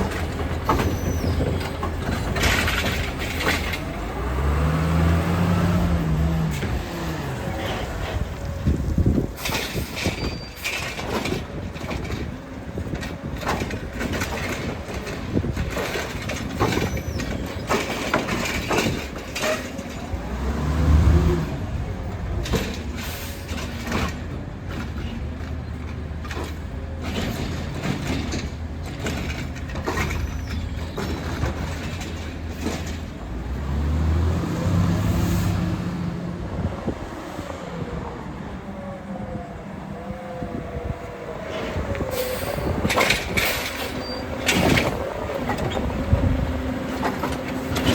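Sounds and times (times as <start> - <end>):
garbage truck engine revving: 0.0 - 9.5, 19.9 - 22.0, 25.6 - 37.1
garbage truck clanks and knocks: 0.0 - 36.8, 41.5 - 47.9.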